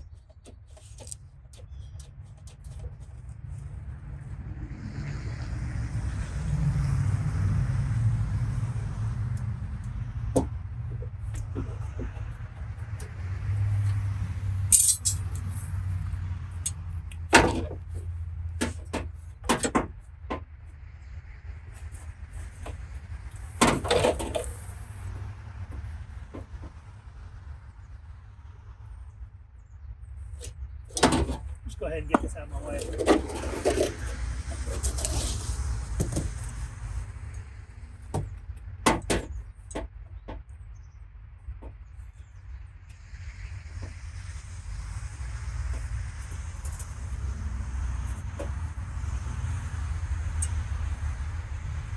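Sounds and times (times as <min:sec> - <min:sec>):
knocks and clunks of handling: 0:00.0 - 0:03.4, 0:09.8 - 0:14.0, 0:16.6 - 0:20.6, 0:21.8 - 0:24.8, 0:30.4 - 0:36.6, 0:37.9 - 0:40.7
metal tools clinking and knocking: 0:14.7 - 0:15.7.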